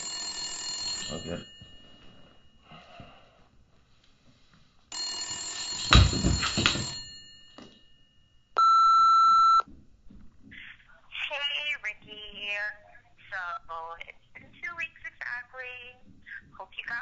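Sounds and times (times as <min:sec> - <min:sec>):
telephone bell ringing: 0:00.0 - 0:02.9, 0:04.9 - 0:09.6
answering machine long beep: 0:08.6 - 0:09.6.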